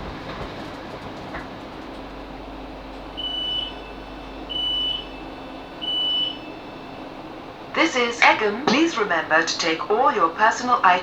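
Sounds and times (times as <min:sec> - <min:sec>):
train carriage rumble: 0:00.0 - 0:11.0
door warning beeps: 0:02.5 - 0:07.4.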